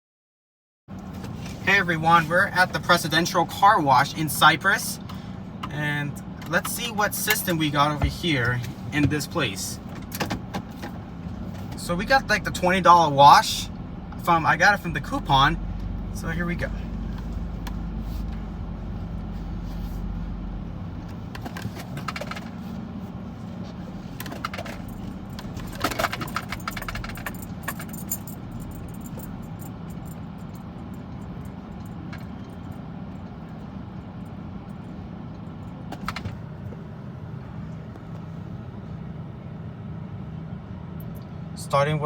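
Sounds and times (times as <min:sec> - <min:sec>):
steady low hum: 0:01.3 - 0:42.0
metallic clicks and jingles: 0:24.2 - 0:32.8.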